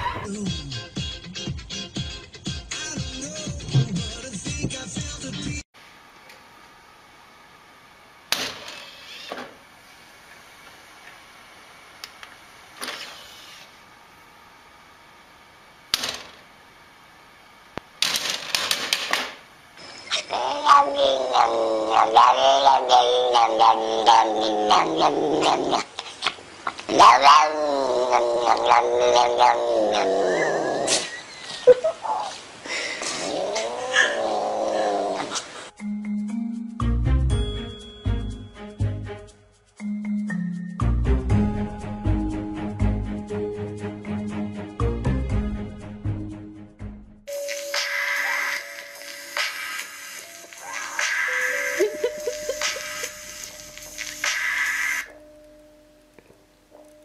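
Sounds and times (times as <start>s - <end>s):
cat yowling: 20.1s - 31.1s, 33.0s - 35.5s, 50.5s - 53.5s.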